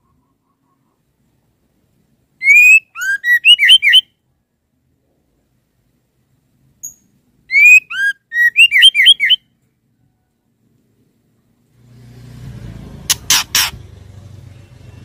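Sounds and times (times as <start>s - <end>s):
bird whistling: 2.4s - 4.1s, 7.5s - 9.5s.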